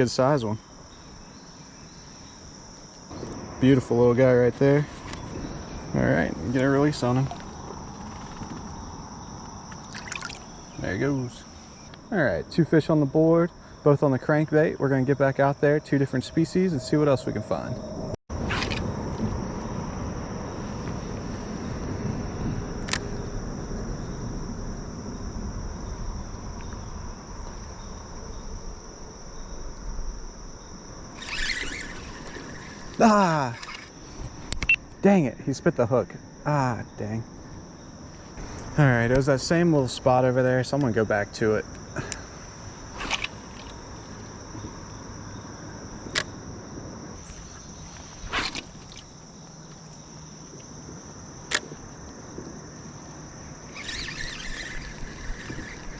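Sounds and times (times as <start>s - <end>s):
insects chirring: 0.0s - 55.9s
creek water rushing: 9.8s - 10.6s
sharp click: 46.1s - 46.3s, 51.5s - 51.8s.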